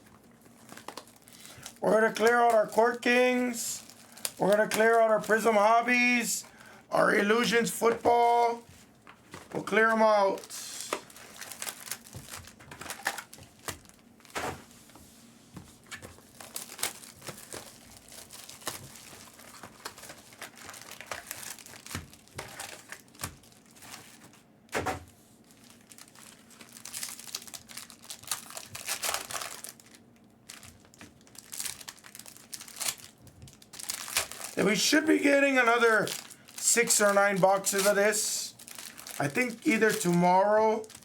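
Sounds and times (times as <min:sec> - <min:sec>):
card pack wrappers crinkling: 0:00.2 - 0:14.6, 0:15.8 - 0:24.4, 0:25.4 - 0:41.0.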